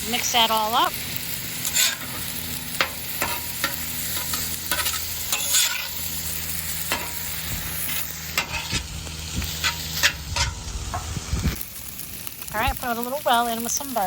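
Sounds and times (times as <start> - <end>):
fried rice sizzling on griddle: 0.0 - 14.0
spatula scraping and clacking: 1.6 - 2.2, 2.8 - 6.0, 7.9 - 11.1.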